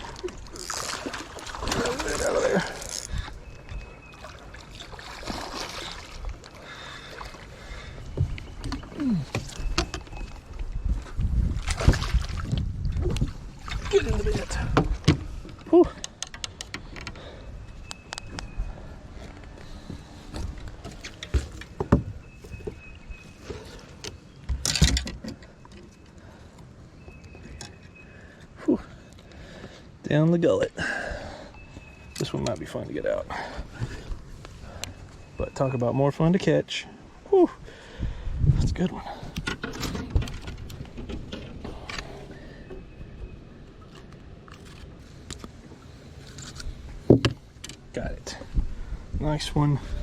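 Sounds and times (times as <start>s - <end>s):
water sloshing around kayak: 0.0s - 16.1s, 16.8s - 29.8s.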